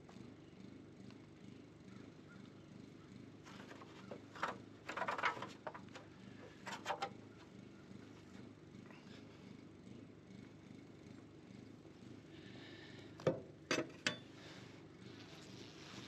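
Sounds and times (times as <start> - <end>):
crackling of comb being handled: 3.5 - 7.2.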